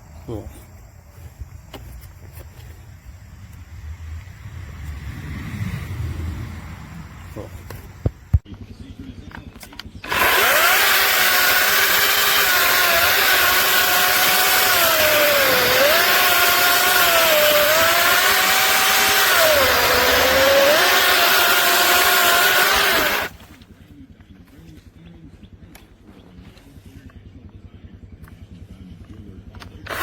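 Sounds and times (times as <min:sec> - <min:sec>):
cordless chainsaw whining: 0:10.0 - 0:23.6.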